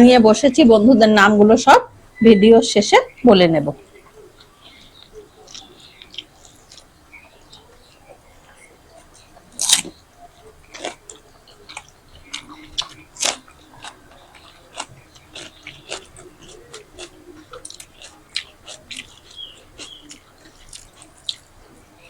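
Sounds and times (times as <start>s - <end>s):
chewing crunchy fried snacks: 4.4s - 22.0s.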